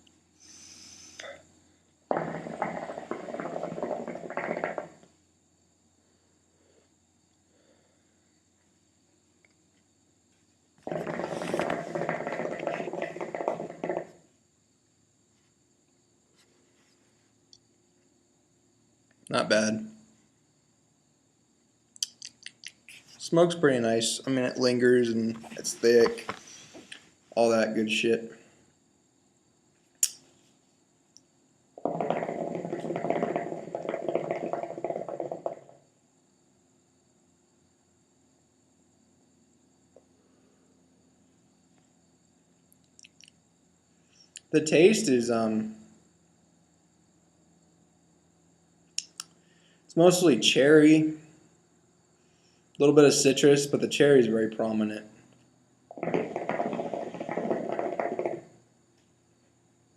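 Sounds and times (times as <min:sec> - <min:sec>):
hookah water bubbling: 0:02.1 - 0:05.1, 0:10.8 - 0:14.2, 0:31.8 - 0:35.8, 0:55.9 - 0:58.6
sharp click: 0:30.0 - 0:30.2.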